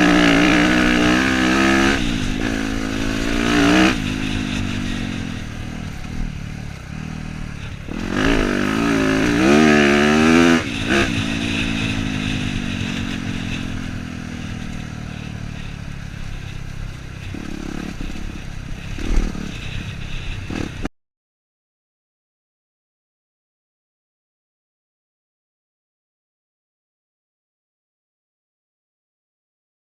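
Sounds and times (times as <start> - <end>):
dirt bike engine revving: 0.0 - 20.9.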